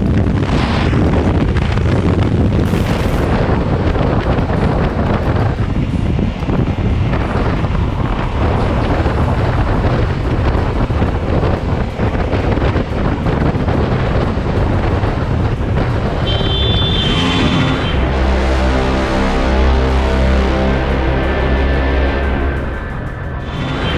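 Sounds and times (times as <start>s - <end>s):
motorcycle engine running: 0.0s - 23.9s
wind buffeting microphone: 0.0s - 23.9s
music: 0.1s - 23.9s.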